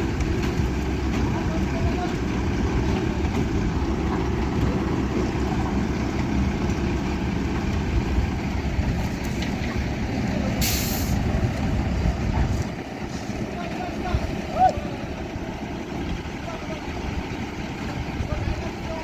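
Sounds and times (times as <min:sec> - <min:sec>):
heavy truck engine rumbling: 0:00.0 - 0:19.0
air brake hiss: 0:10.6 - 0:11.2.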